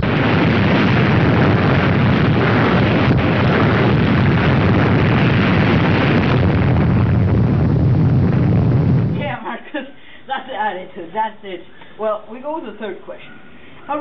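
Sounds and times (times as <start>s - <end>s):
loud rumbling rush of noise: 0.0s - 9.4s.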